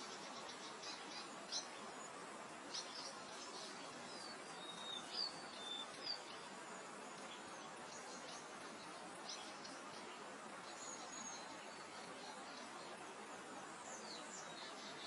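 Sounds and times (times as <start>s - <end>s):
wind hiss: 0.0s - 15.0s.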